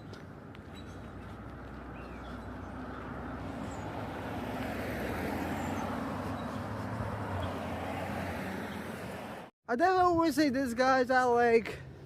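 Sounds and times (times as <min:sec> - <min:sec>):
vehicle passing: 0:01.0 - 0:09.5.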